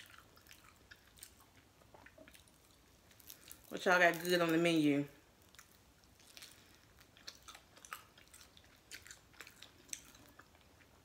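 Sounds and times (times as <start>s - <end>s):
person chewing crunchy food: 0.0s - 4.3s, 5.2s - 11.0s.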